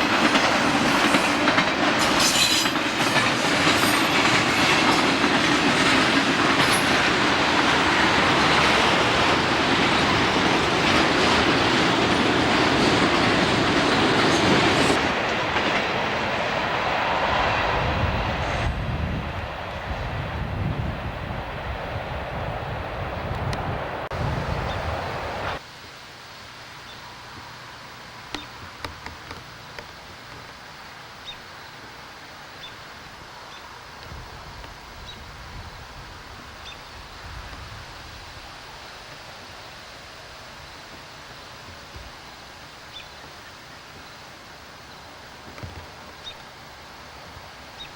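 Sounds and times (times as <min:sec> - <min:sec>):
train wheels rolling on rails: 0:00.0 - 0:25.9, 0:26.6 - 0:47.9
steady hiss: 0:21.3 - 0:47.9.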